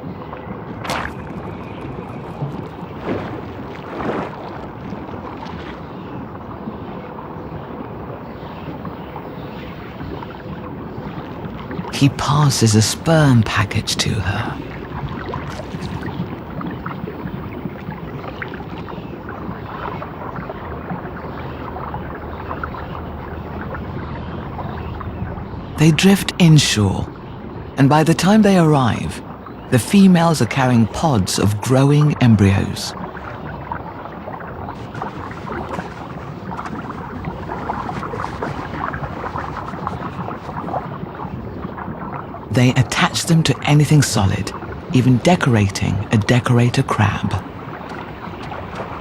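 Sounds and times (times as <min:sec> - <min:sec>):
underwater crackling and ticking: 0:00.0 - 0:49.0
underwater watery wash: 0:00.0 - 0:49.0.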